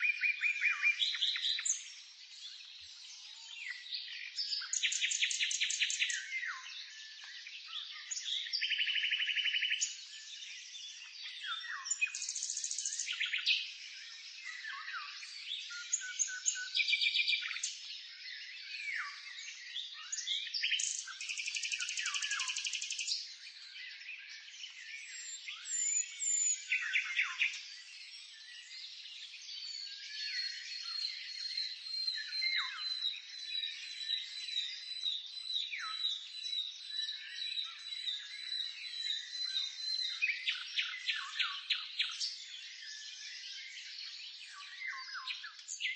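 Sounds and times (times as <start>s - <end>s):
songbirds singing and calling: 0.0s - 45.9s.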